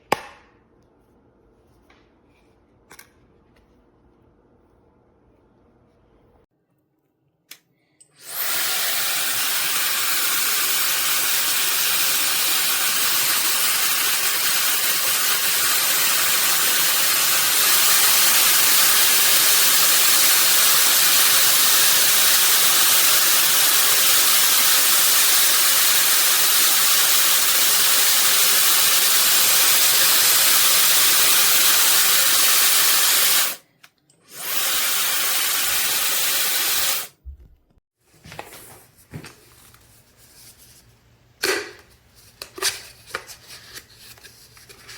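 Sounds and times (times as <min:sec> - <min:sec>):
hair dryer blowing: 0:08.2 - 0:33.6, 0:34.3 - 0:37.2.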